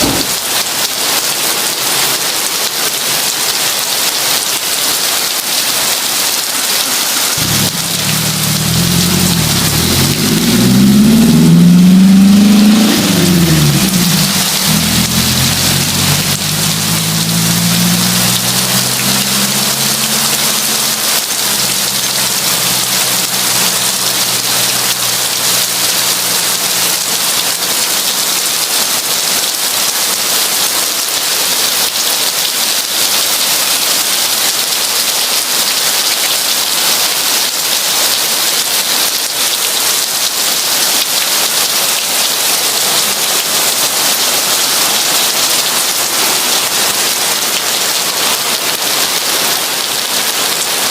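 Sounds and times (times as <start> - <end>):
heavy rain hissing: 0.0 - 50.9
low rumble: 7.4 - 26.0.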